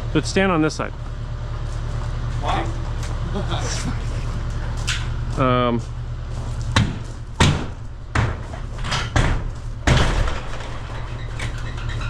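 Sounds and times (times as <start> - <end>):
diesel engine running: 0.0 - 12.0
loud demolition bangs: 6.7 - 11.2.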